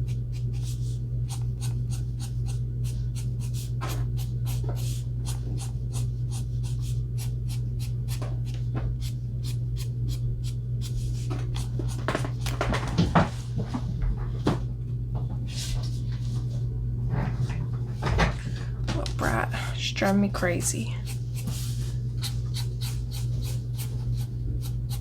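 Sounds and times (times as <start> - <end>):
marker scratching on paper: 0.1 - 8.2.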